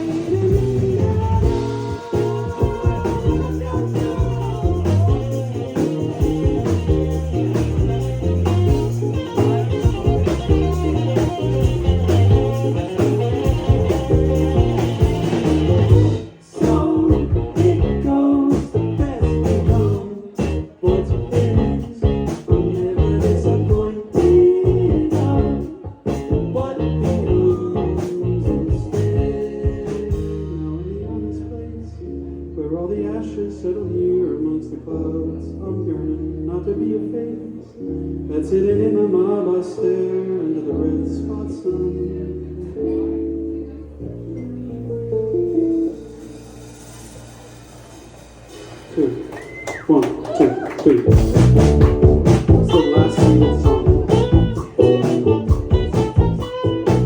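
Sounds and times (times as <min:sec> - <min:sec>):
live rock band playing: 0:00.0 - 0:30.8, 0:42.7 - 0:57.0
person singing: 0:00.0 - 0:43.8, 0:52.4 - 0:57.0.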